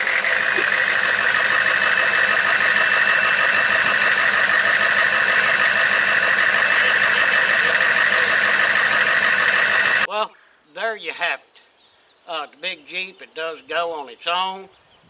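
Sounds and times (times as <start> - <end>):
truck engine running: 0.0 - 10.1.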